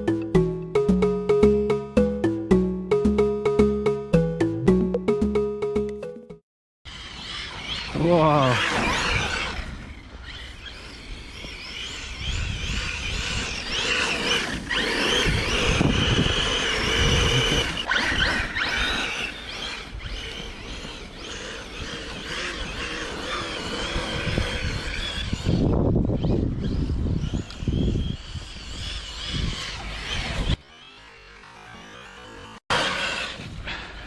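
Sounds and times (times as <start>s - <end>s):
electric motor whining: 6.9s - 33.5s.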